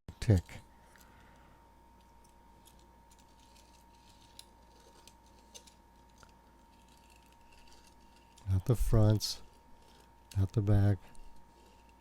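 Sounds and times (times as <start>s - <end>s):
faint steady hum: 0.1s - 12.0s.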